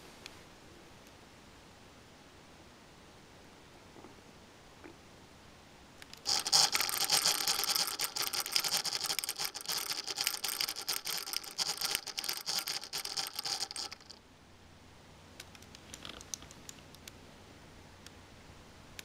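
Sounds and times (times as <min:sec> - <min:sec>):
laptop fan grinding and rattling: 0:06.0 - 0:14.2.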